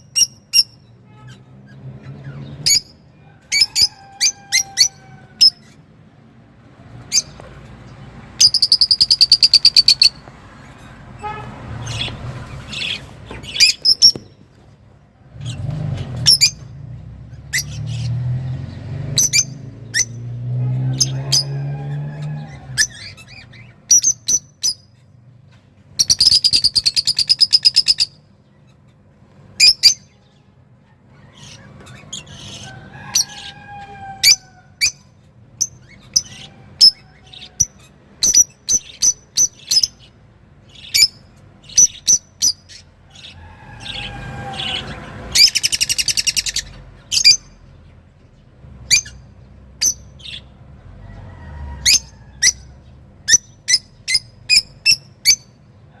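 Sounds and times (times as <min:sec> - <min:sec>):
songbird chirping and trilling: 0:00.0 - 0:06.0, 0:06.8 - 0:14.7, 0:15.3 - 0:56.0.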